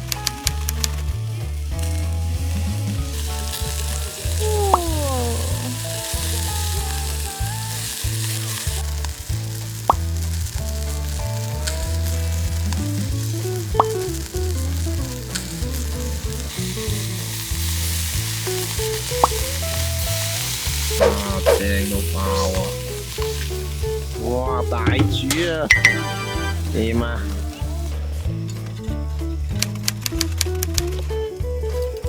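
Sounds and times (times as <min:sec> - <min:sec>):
music with repeating bass line: 0:00.0 - 0:31.6
meat sizzling over charcoal: 0:00.0 - 0:32.0
sharp pops: 0:08.8 - 0:10.7, 0:12.6 - 0:15.8, 0:18.4 - 0:23.3.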